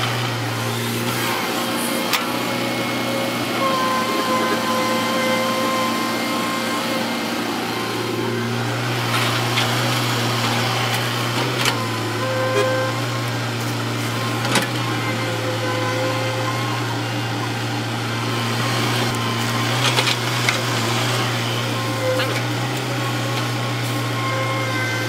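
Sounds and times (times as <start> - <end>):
heavy machinery diesel engine running: 0.0 - 25.0.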